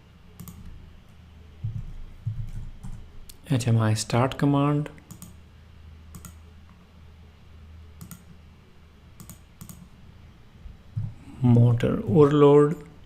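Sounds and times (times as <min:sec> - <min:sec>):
faint low hum: 0:00.0 - 0:13.0
mouse and keyboard clicks: 0:06.1 - 0:06.4, 0:08.0 - 0:08.3, 0:09.2 - 0:09.9.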